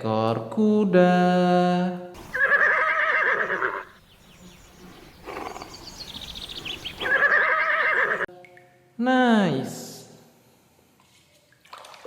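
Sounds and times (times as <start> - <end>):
horse whinnying: 2.2 - 8.3.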